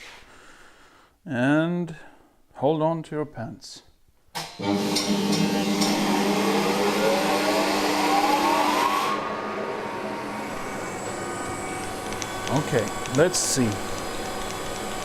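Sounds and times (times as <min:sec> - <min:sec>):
metal lathe motor whine: 0:04.6 - 0:15.0.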